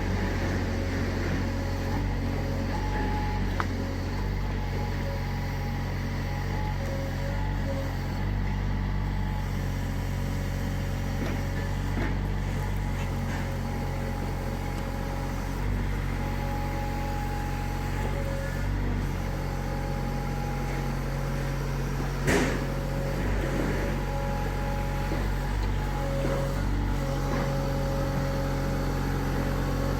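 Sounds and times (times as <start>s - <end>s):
diesel engine running: 0.0s - 29.9s
hydraulic whine: 10.8s - 29.9s.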